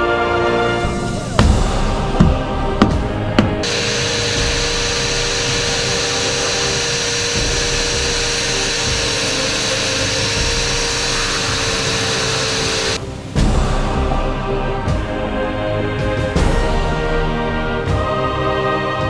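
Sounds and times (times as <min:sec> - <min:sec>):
electric hand planer whining: 0:03.5 - 0:13.0.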